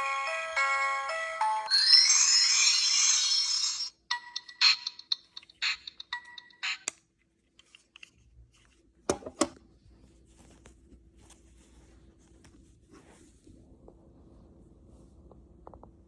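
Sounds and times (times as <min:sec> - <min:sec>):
fabric rustling and scraping: 0:09.9 - 0:15.2.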